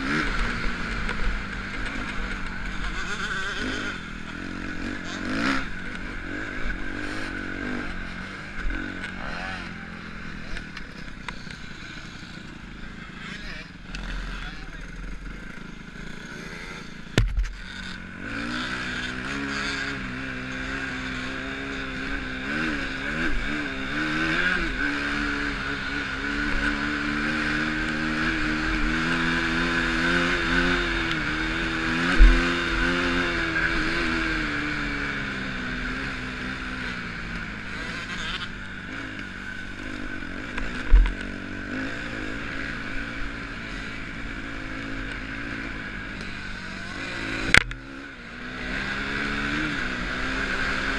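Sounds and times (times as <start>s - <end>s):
motocross bike engine revving: 0.0s - 50.9s.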